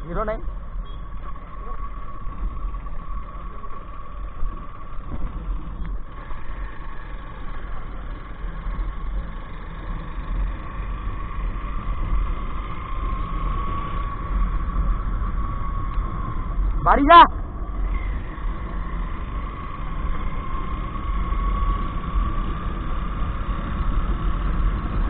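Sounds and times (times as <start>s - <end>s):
motorcycle engine running: 0.0s - 25.0s
wind rumbling on microphone: 8.4s - 25.0s.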